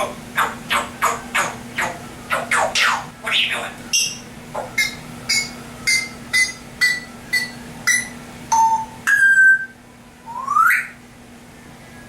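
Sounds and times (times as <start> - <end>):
parrot mimicking electronic beeps: 0.0 - 9.7.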